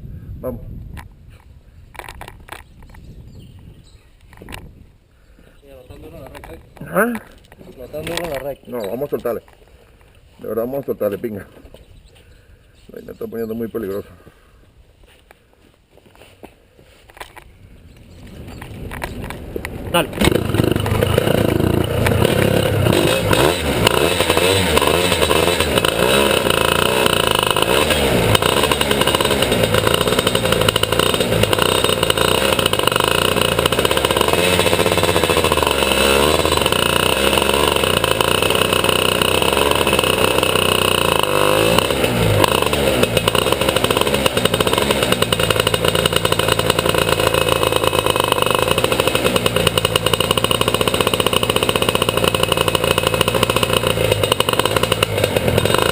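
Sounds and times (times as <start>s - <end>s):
kart engine revving: 18.9s - 55.9s.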